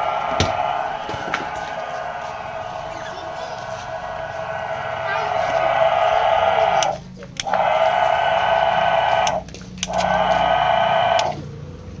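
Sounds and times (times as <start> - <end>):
key machine motor whining: 0.0 - 11.4
machine clicks: 9.0 - 11.4.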